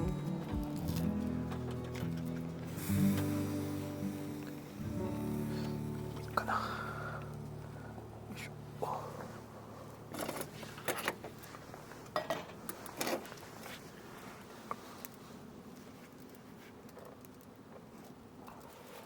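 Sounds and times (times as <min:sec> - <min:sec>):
faint steady background noise: 0:00.0 - 0:19.0.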